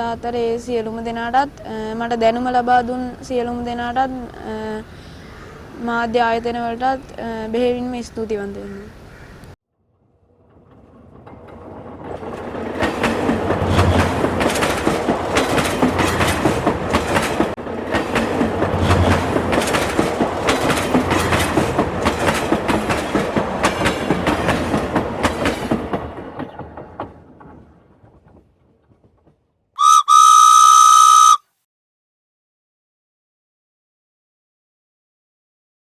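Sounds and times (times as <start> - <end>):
train wheels clacking: 10.7 - 31.1
train horn: 29.8 - 31.4.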